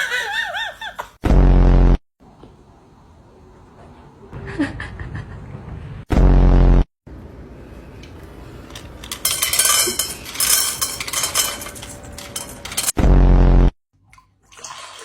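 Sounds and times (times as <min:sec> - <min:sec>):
dishes clattering and clinking: 0:08.7 - 0:13.0.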